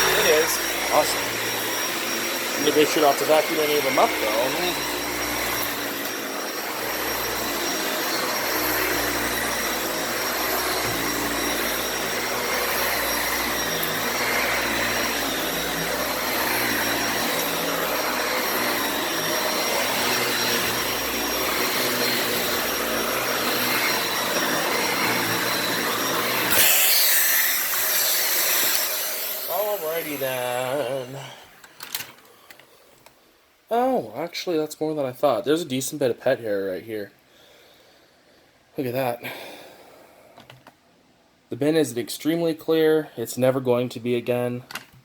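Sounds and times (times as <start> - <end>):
vacuum cleaner running on carpet: 0.0 - 31.7.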